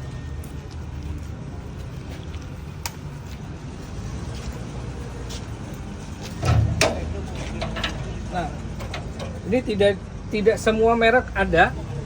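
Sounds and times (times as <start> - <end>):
diesel engine idling: 3.5 - 12.0.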